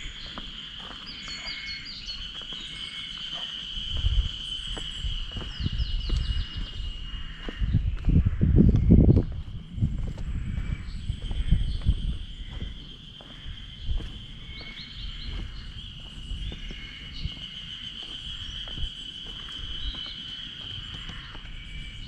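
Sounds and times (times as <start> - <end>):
bird chirps: 0.0 - 7.8, 8.8 - 22.0
high-pitched insect chorus: 0.0 - 22.0
low thumps and rumble: 3.9 - 19.9.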